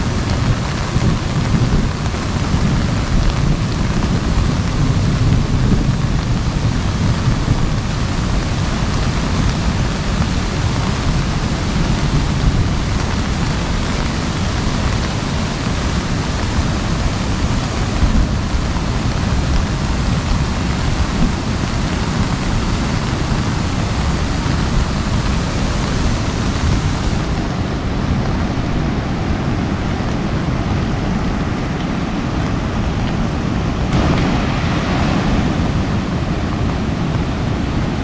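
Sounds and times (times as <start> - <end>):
heavy rain on umbrella: 0.0 - 38.0
deep rumble: 25.2 - 38.0.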